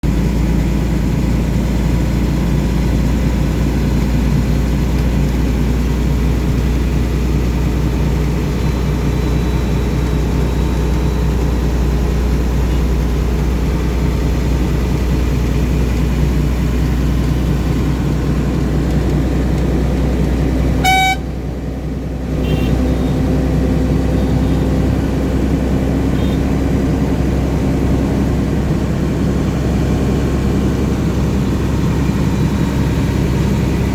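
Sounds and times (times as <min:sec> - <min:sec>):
truck engine rumble: 0:00.0 - 0:33.9
horn toot: 0:20.8 - 0:21.4, 0:22.4 - 0:23.2.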